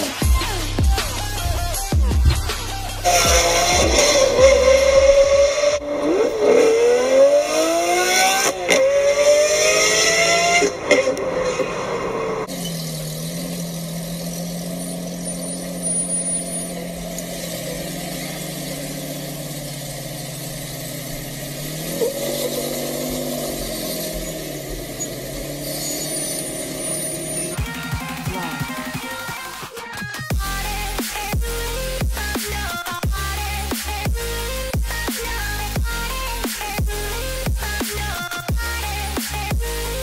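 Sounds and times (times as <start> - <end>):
car engine accelerating hard: 0.0 - 29.2
engine running at low revs: 0.0 - 29.5.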